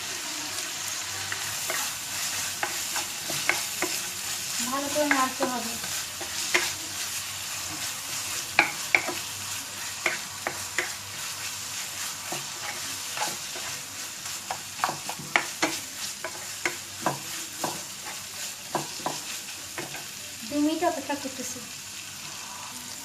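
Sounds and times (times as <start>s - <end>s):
food sizzling in a frying pan: 0.0s - 23.0s
spatula knocking against pan: 8.6s - 9.2s, 14.5s - 17.8s.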